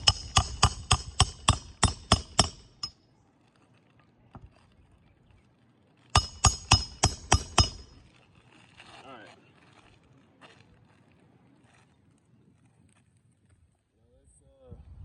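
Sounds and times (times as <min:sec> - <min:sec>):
hammer striking roofing nails: 0:00.0 - 0:02.9, 0:06.2 - 0:08.0.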